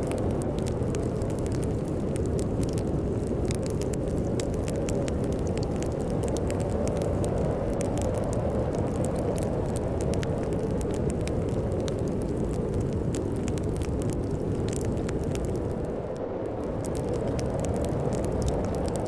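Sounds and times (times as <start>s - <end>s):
storm wind rumbling: 0.0s - 19.0s
wood fire crackling and popping: 0.0s - 19.0s.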